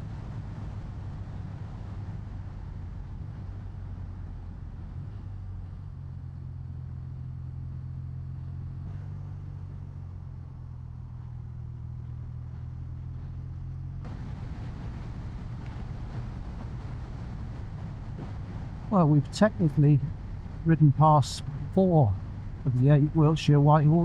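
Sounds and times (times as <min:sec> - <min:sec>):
motorcycle engine running: 0:00.0 - 0:23.0
wind and road rush: 0:00.0 - 0:24.0.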